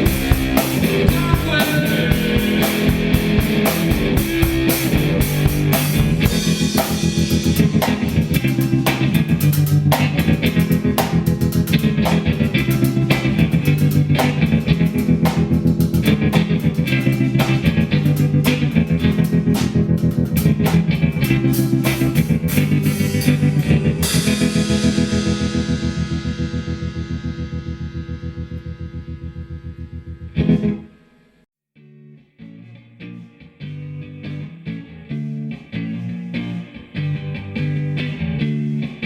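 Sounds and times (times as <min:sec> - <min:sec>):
drum beat: 0:00.0 - 0:21.0
electric guitar: 0:00.0 - 0:31.0, 0:31.8 - 0:39.0
bass guitar: 0:00.0 - 0:39.0.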